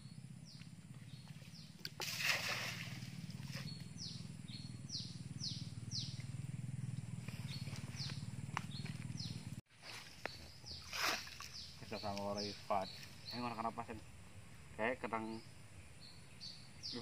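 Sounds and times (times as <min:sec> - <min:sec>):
bird chirping: 0:00.0 - 0:02.0, 0:02.9 - 0:17.0
low steady hum: 0:00.0 - 0:09.6.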